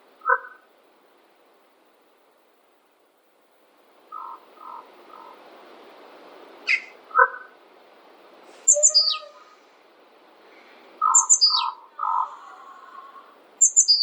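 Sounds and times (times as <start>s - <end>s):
faint steady hiss: 0.0s - 14.0s
birds calling and chirping: 4.1s - 5.4s, 6.6s - 7.6s, 8.5s - 9.8s, 10.4s - 14.0s.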